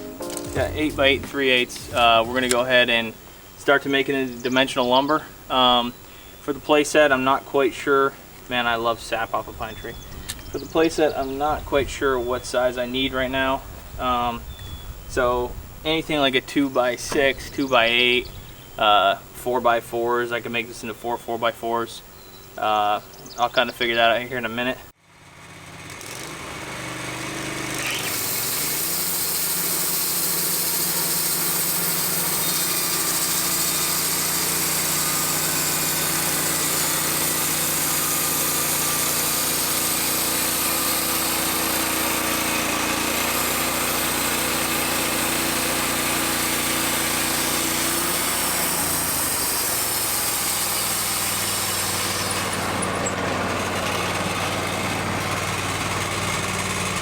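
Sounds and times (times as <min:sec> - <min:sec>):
band sawmill running: 0:00.0 - 0:03.6, 0:25.1 - 0:57.0.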